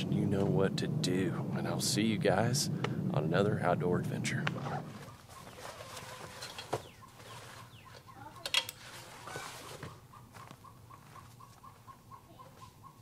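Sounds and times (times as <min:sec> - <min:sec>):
faint bird calling: 0:04.5 - 0:13.0.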